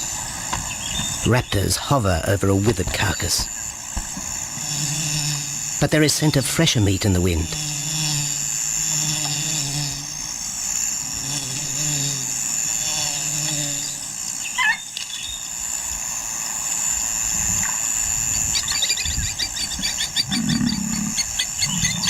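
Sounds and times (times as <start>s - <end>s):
high insect drone: 0.0s - 22.0s
wavering bird call: 14.4s - 15.0s, 18.5s - 22.0s.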